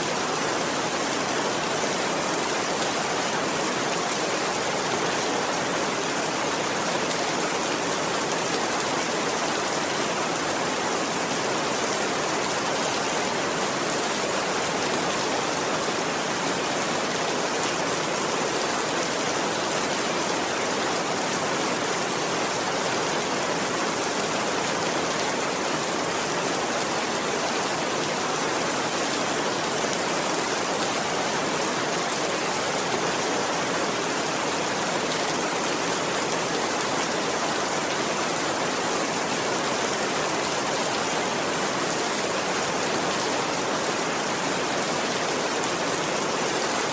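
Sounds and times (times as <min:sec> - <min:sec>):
steady rainfall: 0:00.0 - 0:46.9.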